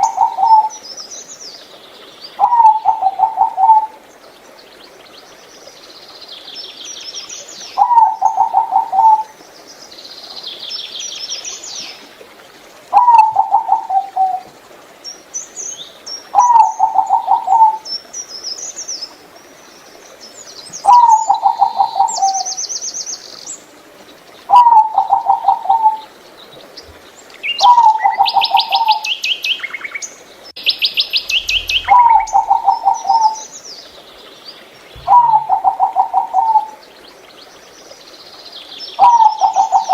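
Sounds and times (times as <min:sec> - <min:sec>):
dove cooing: 0:00.0 - 0:00.7, 0:02.4 - 0:04.0, 0:07.8 - 0:09.3, 0:12.9 - 0:14.5, 0:16.4 - 0:17.8, 0:20.9 - 0:22.5, 0:24.5 - 0:26.1, 0:31.1 - 0:33.5, 0:35.0 - 0:36.8, 0:39.0 - 0:39.9
small birds chirping and trilling: 0:26.2 - 0:36.1.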